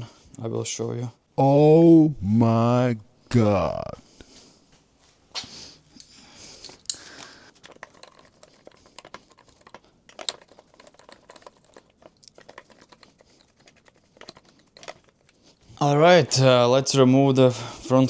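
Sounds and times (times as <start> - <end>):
light clicks and crinkles: 5.9 - 15.6.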